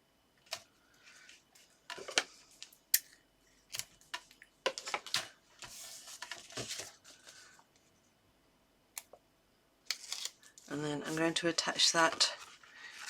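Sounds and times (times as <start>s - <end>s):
tape and paper clicks and crinkles: 3.7s - 7.9s, 9.9s - 13.0s
paper rustle: 4.7s - 7.6s, 10.0s - 13.0s.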